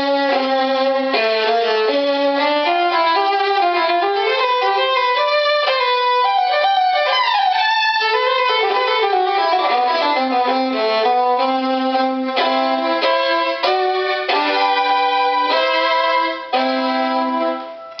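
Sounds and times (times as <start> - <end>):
solo violin melody: 0.0 - 18.0.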